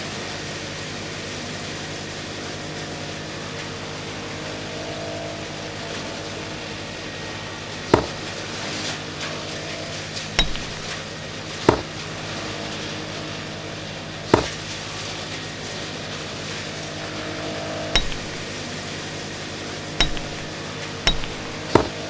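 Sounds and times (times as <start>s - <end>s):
sharp knocks: 7.9s - 8.3s, 10.4s - 11.0s, 11.6s - 12.0s, 14.3s - 14.6s, 18.0s - 18.6s, 20.0s - 22.0s.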